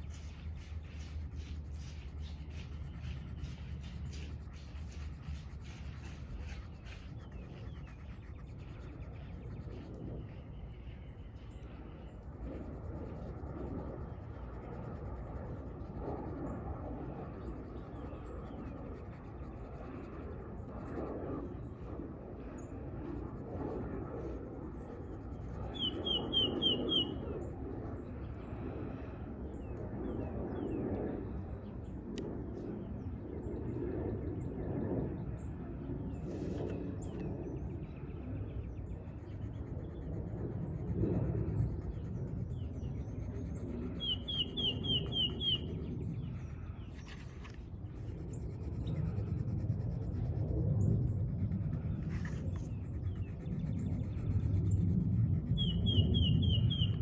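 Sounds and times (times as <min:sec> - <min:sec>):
coloring strokes on paper: 0:00.0 - 0:10.7, 0:12.3 - 0:21.6, 0:36.2 - 0:37.2, 0:39.0 - 0:56.1
low background hum: 0:00.0 - 0:57.0
bird chirping: 0:25.7 - 0:27.3, 0:41.9 - 0:47.4, 0:55.5 - 0:57.0.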